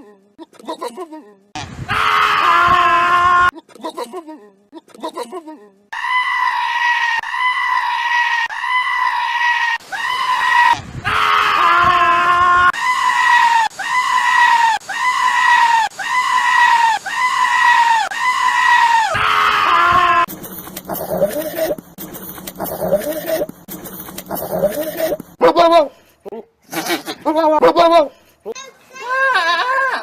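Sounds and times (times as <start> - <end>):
goat screaming: 5.9 - 20.3, 26.7 - 28.1.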